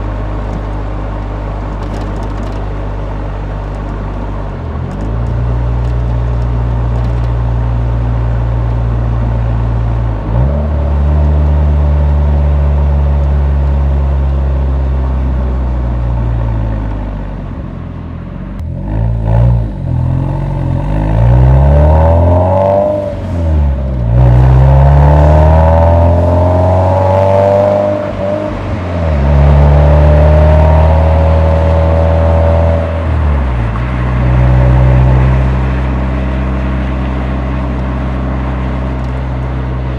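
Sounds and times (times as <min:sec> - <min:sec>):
car exhaust revving: 0:18.6 - 0:39.9.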